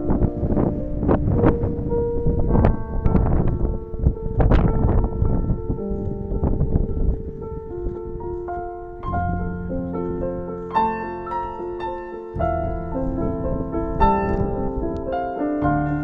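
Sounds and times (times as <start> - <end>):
low bass piano notes: 0.0 - 16.0
slow piano melody: 0.0 - 16.0.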